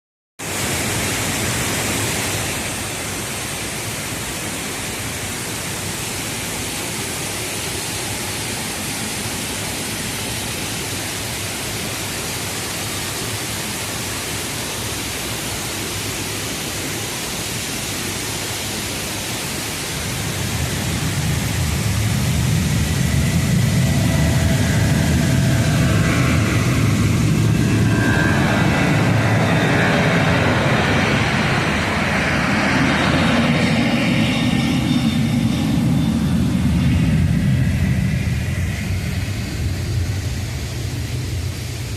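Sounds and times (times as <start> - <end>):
jet engines hissing and rumbling: 0.4 - 41.9
jet engine whining tones: 19.8 - 41.9.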